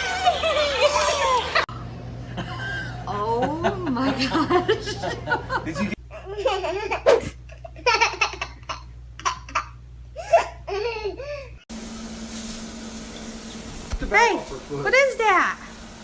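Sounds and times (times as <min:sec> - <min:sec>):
baby laughing: 0:00.0 - 0:01.7, 0:06.1 - 0:11.5
steady hiss with low hum: 0:00.0 - 0:16.0.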